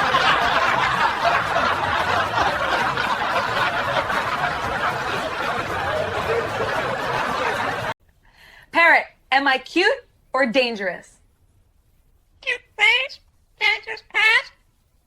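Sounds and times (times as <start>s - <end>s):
crowd laughing: 0.0s - 8.0s.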